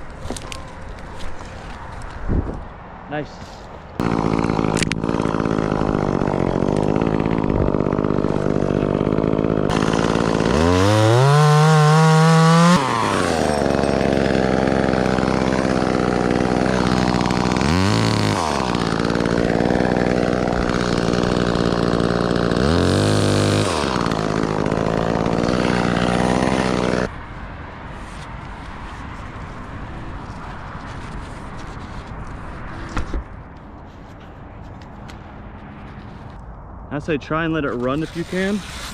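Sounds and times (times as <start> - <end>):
chainsaw idling and revving: 4.0 - 27.1, 38.0 - 38.9.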